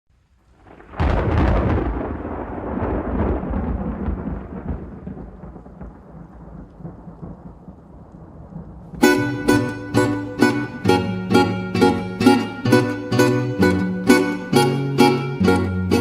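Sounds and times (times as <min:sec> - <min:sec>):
thunder crack and rolling rumble: 0:00.4 - 0:09.1.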